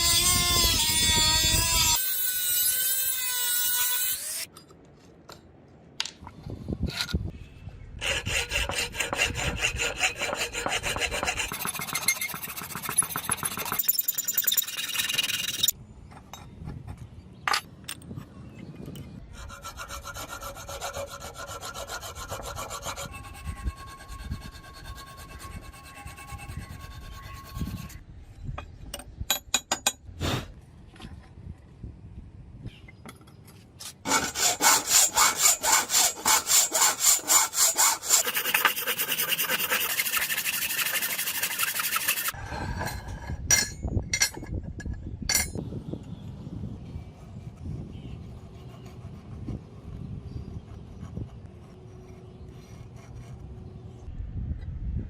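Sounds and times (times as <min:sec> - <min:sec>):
hand tool rhythmic strokes: 0:08.0 - 0:15.7, 0:34.1 - 0:42.4.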